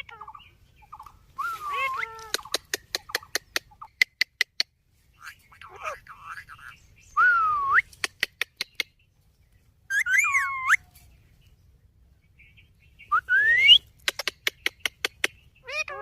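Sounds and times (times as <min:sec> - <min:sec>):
parakeet sharp clicks: 0:02.2 - 0:04.7, 0:08.0 - 0:08.9, 0:14.0 - 0:15.4.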